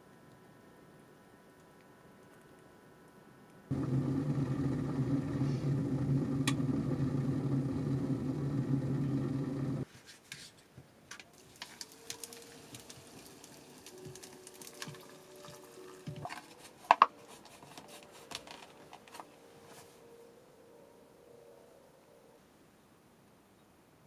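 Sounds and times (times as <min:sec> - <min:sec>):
small electric motor running: 0:03.7 - 0:09.8.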